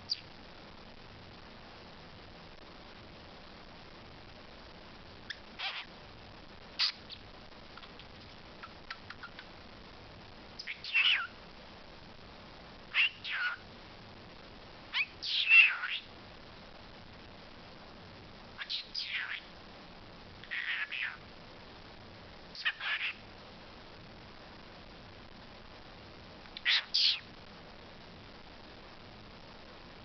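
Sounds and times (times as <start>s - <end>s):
talking bird calls: 5.3s - 5.9s, 10.6s - 11.3s, 12.9s - 13.6s, 14.9s - 16.1s, 18.6s - 19.5s, 20.4s - 21.2s, 22.6s - 23.2s, 26.6s - 27.2s.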